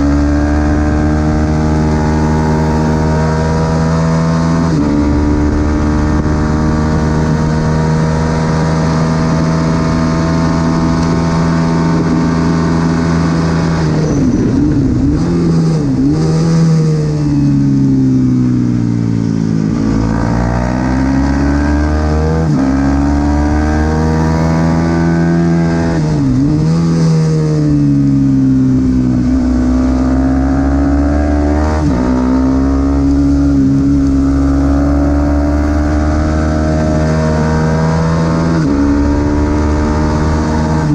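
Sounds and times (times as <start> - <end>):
motorcycle engine at high revs: 0.0 - 40.9.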